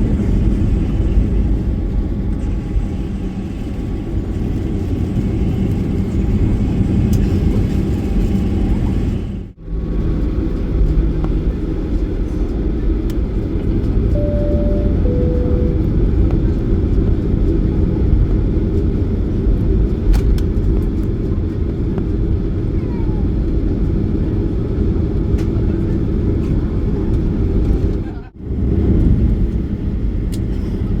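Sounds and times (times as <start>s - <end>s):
jet engines rumbling in cabin: 0.0s - 31.0s
two-note cabin chime: 14.2s - 16.1s.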